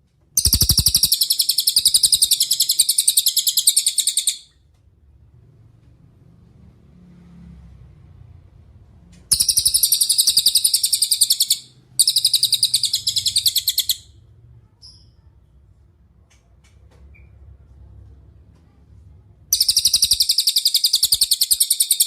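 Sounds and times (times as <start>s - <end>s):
songbird high-pitched trills: 0.4s - 4.5s, 9.3s - 14.1s, 19.5s - 22.0s
bird chirp: 0.4s - 4.6s, 9.3s - 15.3s, 19.5s - 22.0s.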